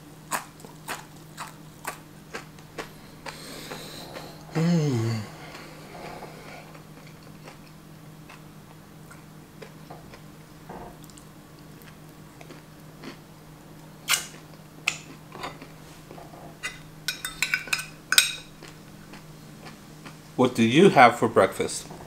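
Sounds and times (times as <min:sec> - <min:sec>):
low steady hum: 0:00.0 - 0:22.0
person chewing bacon: 0:00.3 - 0:04.5, 0:05.3 - 0:10.4, 0:11.0 - 0:15.8, 0:18.3 - 0:20.2.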